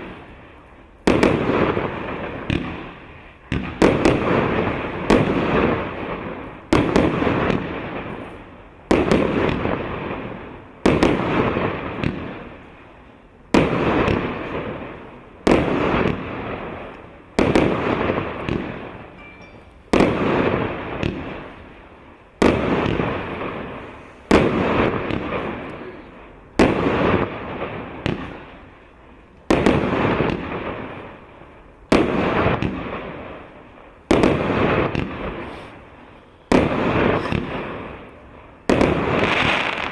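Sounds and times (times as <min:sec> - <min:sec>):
fireworks shells bursting: 0:16.8 - 0:21.7, 0:34.1 - 0:38.1.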